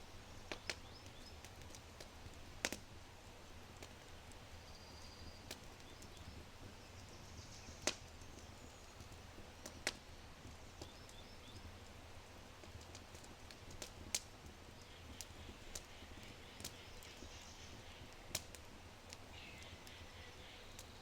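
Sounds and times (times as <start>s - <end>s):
fire crackling: 0.0s - 21.0s
faint bird chirps: 4.5s - 9.1s, 14.7s - 18.2s, 19.3s - 21.0s.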